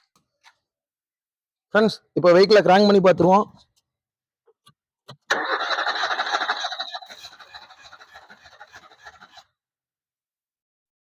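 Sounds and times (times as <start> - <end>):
starter motor cranking engine: 5.1 - 9.5.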